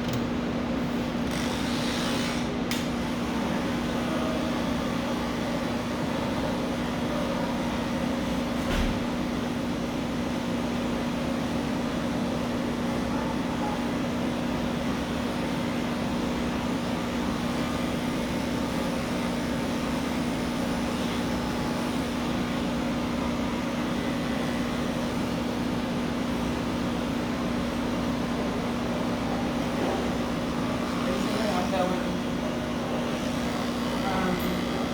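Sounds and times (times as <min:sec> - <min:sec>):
electric clippers humming: 0:01.2 - 0:03.4, 0:33.0 - 0:34.9.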